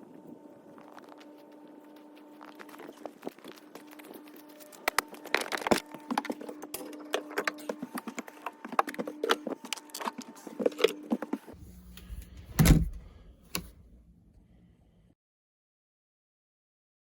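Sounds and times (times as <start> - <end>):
loud thump: 12.5 - 13.2.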